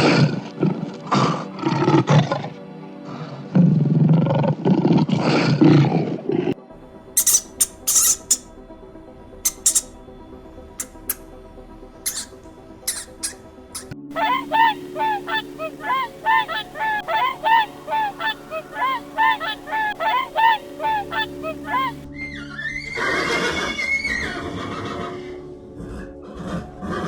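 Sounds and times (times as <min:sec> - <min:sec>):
background music: 0:06.6 - 0:27.0
animal honking calls: 0:07.2 - 0:08.5, 0:09.5 - 0:09.9, 0:10.8 - 0:11.2, 0:12.1 - 0:22.1.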